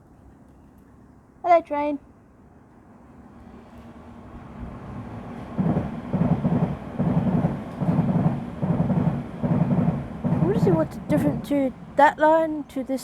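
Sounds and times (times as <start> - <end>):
train passing: 2.9 - 13.0.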